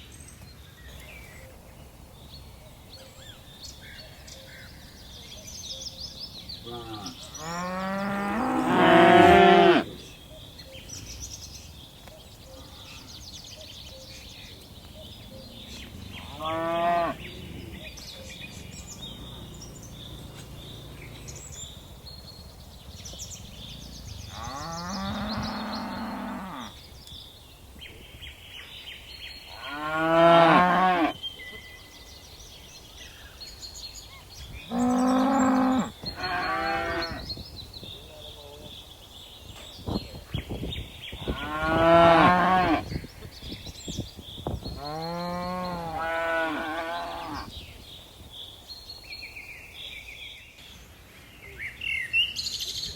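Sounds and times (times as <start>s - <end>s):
cattle mooing: 6.7s - 10.0s.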